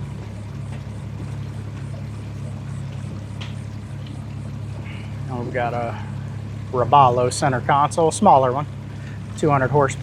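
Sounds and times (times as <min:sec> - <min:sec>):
motorboat engine droning: 0:00.0 - 0:10.0.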